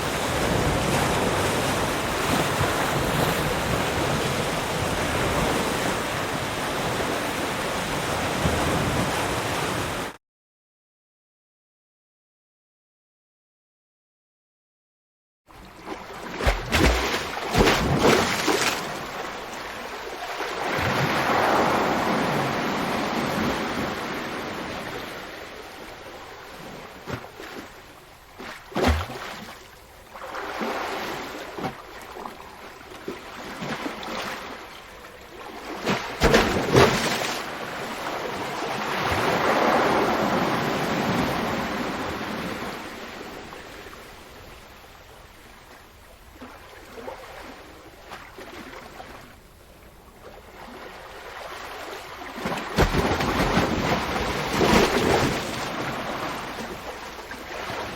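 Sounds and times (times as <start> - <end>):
ocean waves breaking: 0.0 - 10.2, 15.8 - 27.8, 28.4 - 44.0, 50.6 - 57.9.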